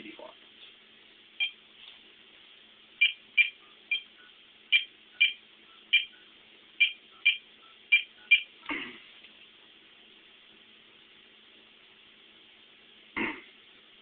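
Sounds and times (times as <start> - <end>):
phone keypad beeping: 3.0 - 8.5.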